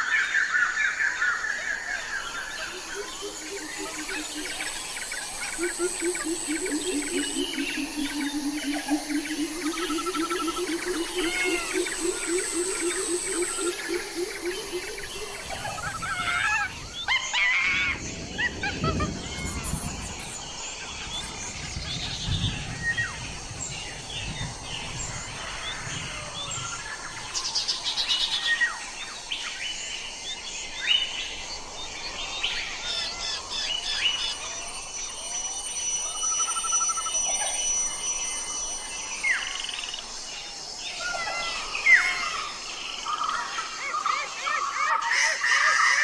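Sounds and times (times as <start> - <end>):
birds chirping and calling: 0.6 - 20.6, 40.9 - 46.0
fast bird trill: 2.8 - 16.8.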